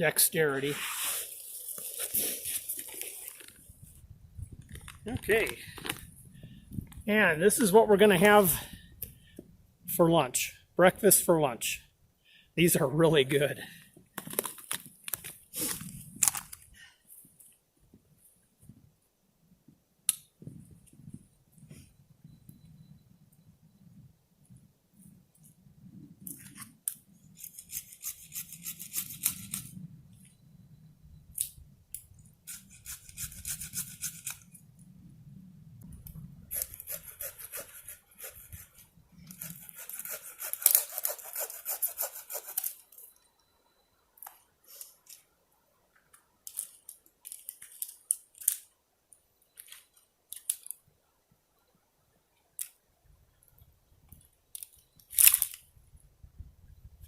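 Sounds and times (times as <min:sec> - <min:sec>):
hand saw cutting limbs: 0:36.5 - 0:42.6.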